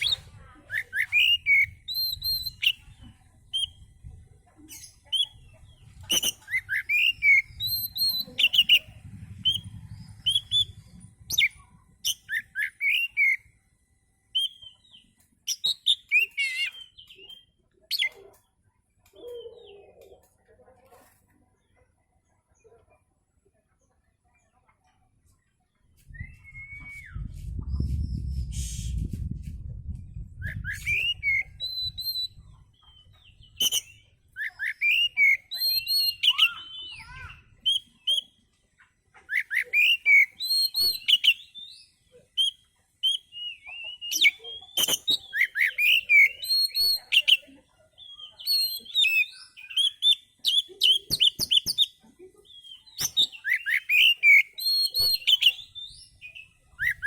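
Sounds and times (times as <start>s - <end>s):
bird singing whistled phrases: 0.0s - 2.9s, 6.1s - 8.8s, 9.4s - 13.5s, 14.4s - 18.1s, 26.1s - 29.1s, 30.4s - 38.3s, 39.4s - 47.4s, 48.0s - 51.9s, 52.6s - 57.0s
low rumble: 8.9s - 11.3s, 26.1s - 30.6s.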